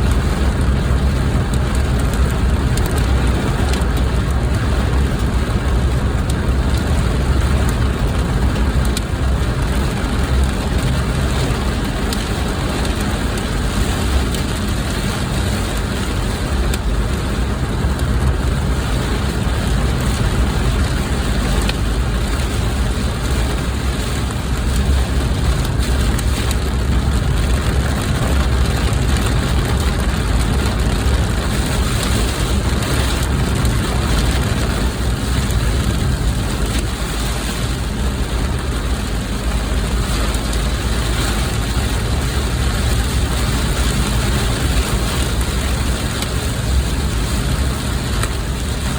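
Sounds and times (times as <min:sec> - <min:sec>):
car engine and road noise: 0:00.0 - 0:48.9
heavy rain falling on car: 0:00.0 - 0:48.9
raindrops clicking: 0:00.1 - 0:14.8, 0:16.6 - 0:16.9, 0:20.0 - 0:22.4, 0:24.2 - 0:37.0.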